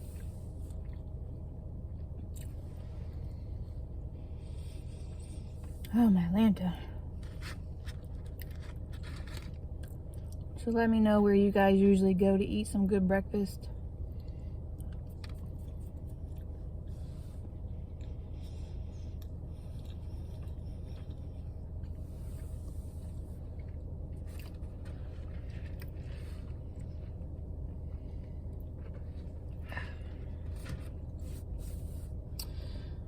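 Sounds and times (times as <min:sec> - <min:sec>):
low hum: 0:00.0 - 0:33.0
person chewing food: 0:00.1 - 0:03.3, 0:07.2 - 0:10.5, 0:17.6 - 0:31.8.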